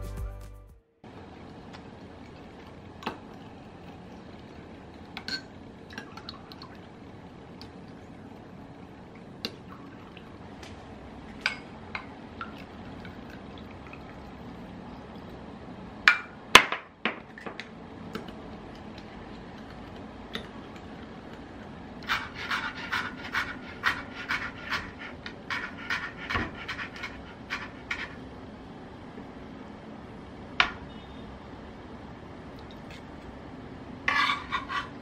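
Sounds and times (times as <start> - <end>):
utensil stirring eggs in glass: 18.1 - 28.2
knife chopping on cutting board: 22.1 - 28.1.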